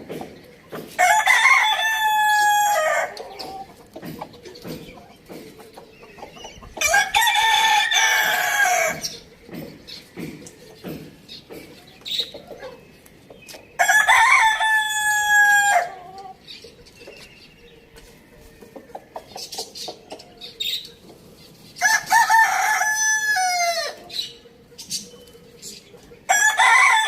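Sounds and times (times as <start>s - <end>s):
chickens clucking softly: 0.0s - 13.9s, 15.7s - 26.8s
rooster crowing: 1.0s - 3.2s, 6.8s - 9.1s, 13.8s - 16.1s, 21.8s - 24.0s, 26.3s - 27.0s.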